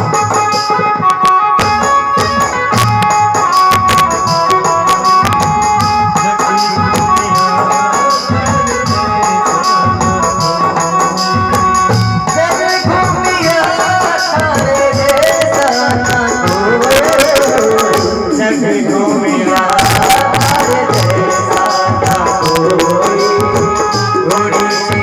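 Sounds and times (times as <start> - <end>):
hand drums beating: 0.0 - 25.0
jingling percussion: 0.0 - 25.0.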